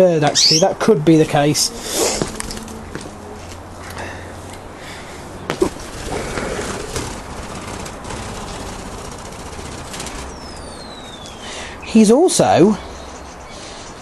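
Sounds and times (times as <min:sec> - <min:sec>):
budgies chattering: 0:00.3 - 0:00.8, 0:10.2 - 0:14.0
steady low hum: 0:01.0 - 0:12.0.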